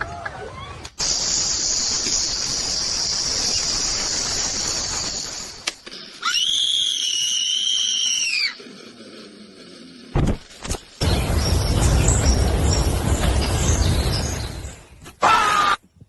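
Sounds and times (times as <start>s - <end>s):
loud harsh hiss: 1.0s - 5.6s
high-pitched scream: 6.2s - 8.6s.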